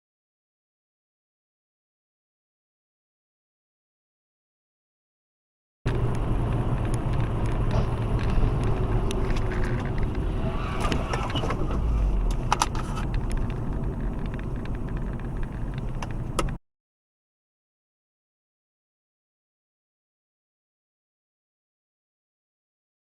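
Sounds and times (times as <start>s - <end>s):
car engine and road rumble: 5.9s - 16.6s
sharp clicks and knocks: 5.9s - 16.6s.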